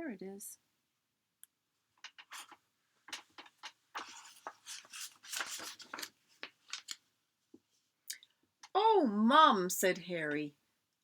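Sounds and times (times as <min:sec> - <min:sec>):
book pages rustling: 0:02.0 - 0:07.8.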